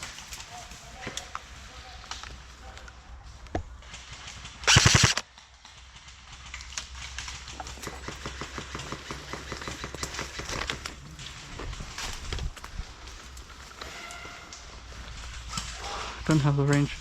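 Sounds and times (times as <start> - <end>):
airsoft rifle full-auto burst: 4.6 - 5.2
rapid regular clicking: 4.7 - 5.2.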